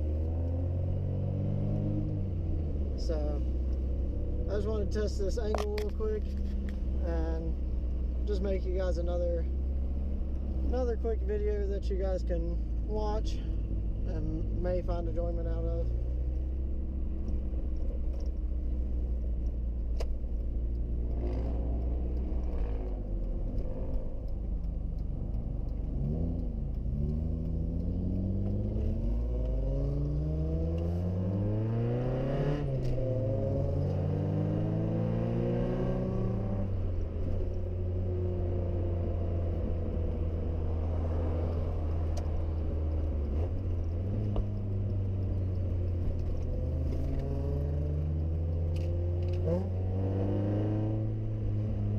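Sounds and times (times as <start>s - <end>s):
car engine running: 1.7s - 51.9s.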